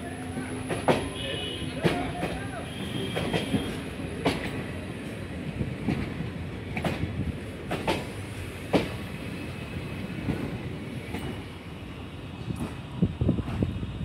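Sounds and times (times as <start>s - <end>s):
train rolling past: 0.0s - 14.0s
wheels clacking on rail joints: 3.1s - 4.8s, 5.8s - 9.0s.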